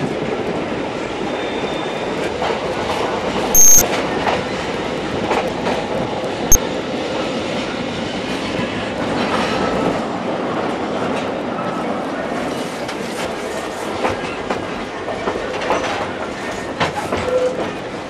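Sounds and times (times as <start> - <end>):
train wheels clicking over rail joints: 13.9 - 18.0.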